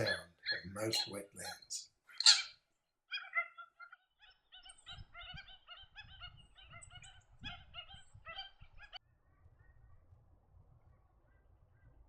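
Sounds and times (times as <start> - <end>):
stilts calling: 0.0 - 2.5.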